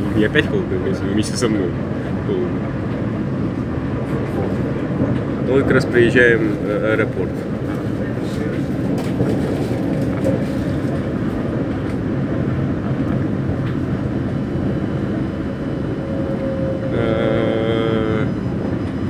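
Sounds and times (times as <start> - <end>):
train rumbling: 0.0 - 19.0
steady pitched tone: 12.2 - 19.0.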